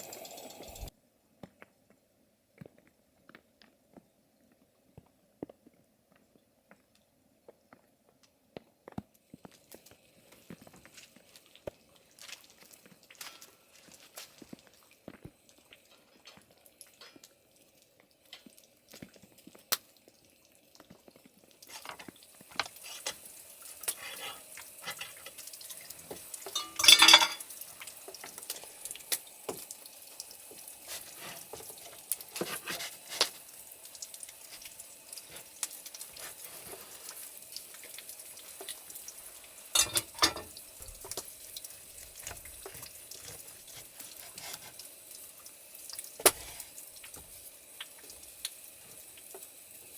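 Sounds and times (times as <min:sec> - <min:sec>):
meat sizzling: 0:00.0 - 0:00.9, 0:09.3 - 0:49.9.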